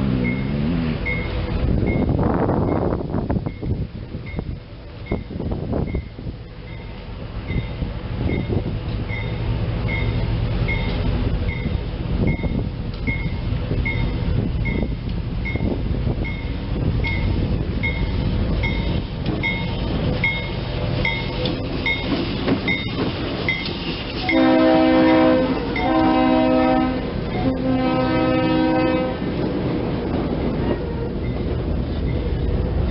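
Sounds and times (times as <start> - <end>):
crossing bell dinging: 0.0 - 29.2
train rumbling: 0.0 - 32.9
locomotive air horn blasts: 24.2 - 29.4.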